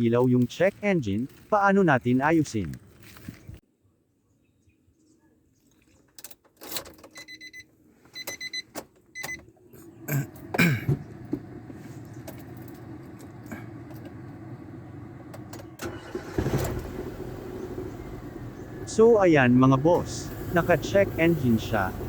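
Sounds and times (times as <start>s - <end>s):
dashboard warning chime beeps: 7.2s - 9.4s
car engine cranking and idling: 8.8s - 22.0s.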